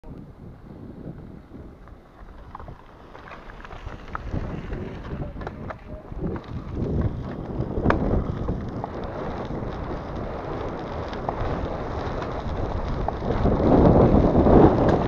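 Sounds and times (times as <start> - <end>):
low tyre rumble: 0.0 - 15.0
wind buffeting microphone: 0.0 - 15.0
bike clicks and rattles: 1.7 - 15.0.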